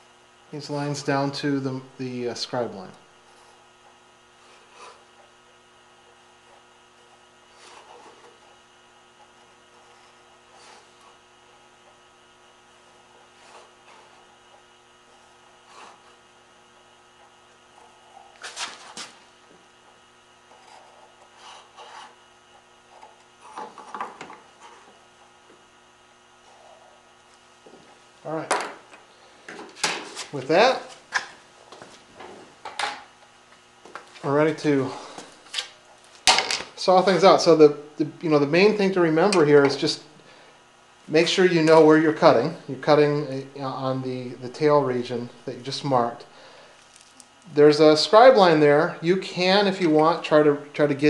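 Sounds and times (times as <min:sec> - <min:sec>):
electrical hum: 0:00.0 - 0:51.0
pencil scraping strokes: 0:04.4 - 0:05.3, 0:06.5 - 0:08.6, 0:09.2 - 0:11.7, 0:12.8 - 0:16.2, 0:20.5 - 0:22.2.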